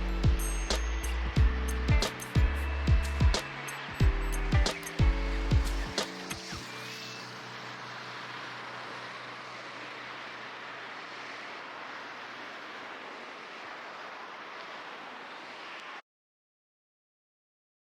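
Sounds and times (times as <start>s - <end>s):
river water rushing: 2.0s - 4.0s, 4.6s - 16.0s.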